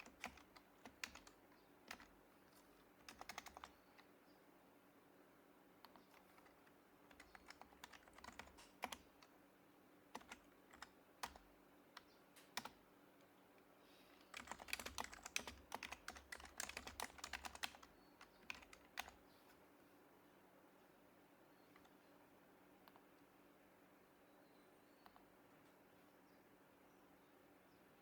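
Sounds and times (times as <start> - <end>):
keyboard typing: 0.0 - 4.1, 5.8 - 9.3, 10.1 - 12.8, 14.3 - 19.2.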